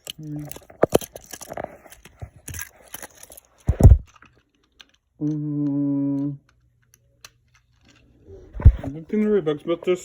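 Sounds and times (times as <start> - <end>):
plastic toy train clicking and rattling: 0.0 - 5.1.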